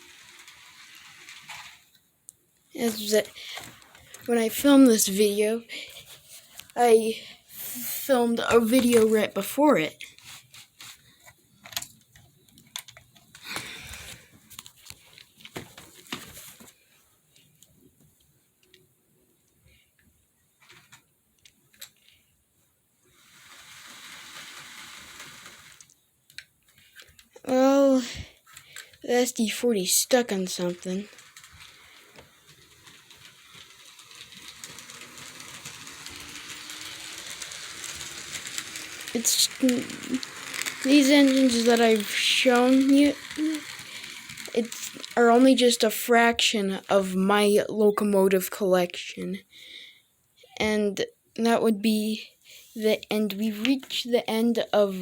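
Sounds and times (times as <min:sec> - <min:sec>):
model train clicks and knocks: 0:00.0 - 0:02.0, 0:23.2 - 0:27.3, 0:29.6 - 0:47.0
small electric motor humming: 0:33.6 - 0:45.2.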